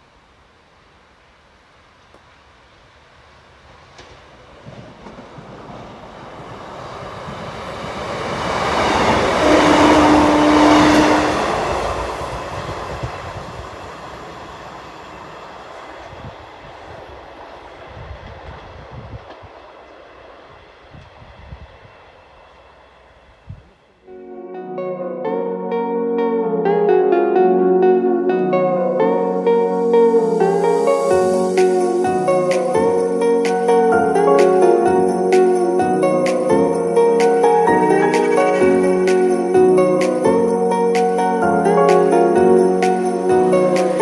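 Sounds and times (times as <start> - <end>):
train wheels on rails: 3.7 - 23.8
diesel train engines: 3.9 - 23.5.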